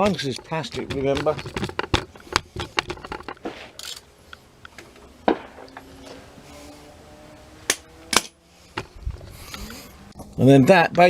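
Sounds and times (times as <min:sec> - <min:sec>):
tools clicking and tapping: 0:00.0 - 0:04.0.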